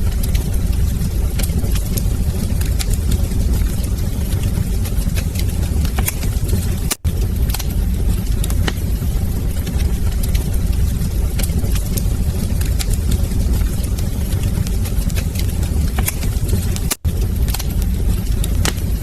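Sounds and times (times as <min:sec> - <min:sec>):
wood fire crackling: 0:00.0 - 0:19.0
sharp pops of fire: 0:11.9 - 0:19.0.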